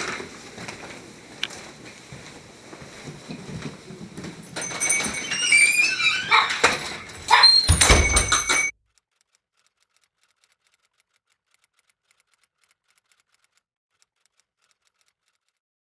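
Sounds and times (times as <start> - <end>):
high squeaks: 4.6 - 8.7.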